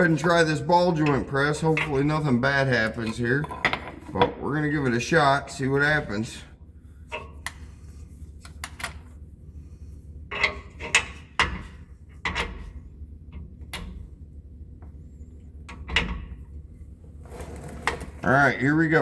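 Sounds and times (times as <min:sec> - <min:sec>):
metal clanks and knocks: 0:03.0 - 0:04.4, 0:10.3 - 0:14.1.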